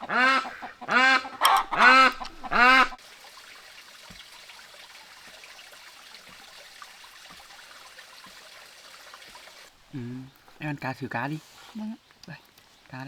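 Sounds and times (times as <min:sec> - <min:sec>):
domestic fowl honking calls: 0:00.0 - 0:03.0.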